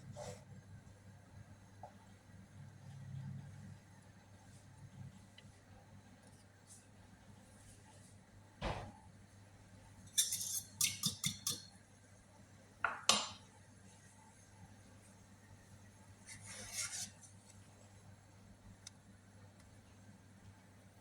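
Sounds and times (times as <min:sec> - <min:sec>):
utensils knocking on dishes: 0:10.2 - 0:11.7.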